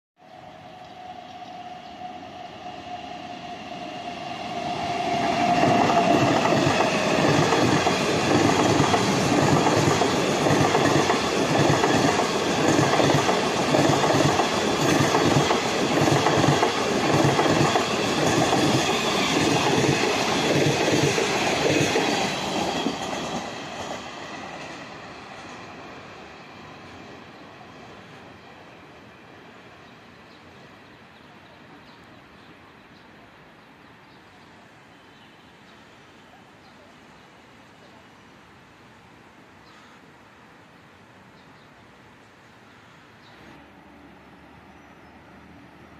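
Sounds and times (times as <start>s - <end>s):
train wheels clacking over rails: 4.9s - 25.9s.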